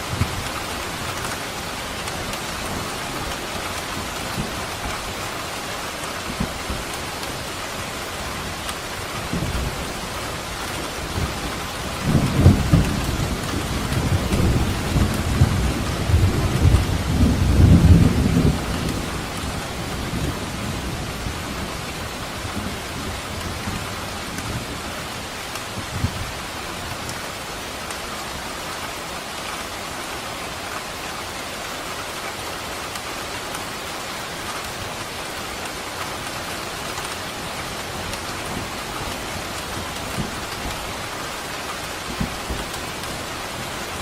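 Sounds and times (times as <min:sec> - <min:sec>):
steady rain falling: 0:00.0 - 0:44.0
thunder rumbling: 0:09.2 - 0:24.6.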